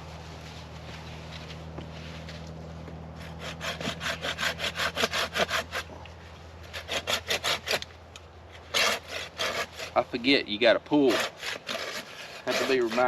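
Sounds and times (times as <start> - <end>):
hand saw cutting wood: 3.2 - 6.0, 6.6 - 7.9, 8.6 - 13.0.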